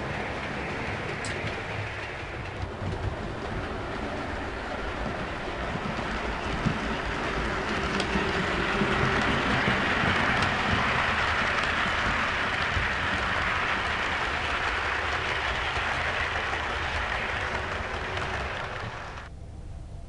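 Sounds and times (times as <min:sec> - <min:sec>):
model train running on track: 0:00.0 - 0:19.3.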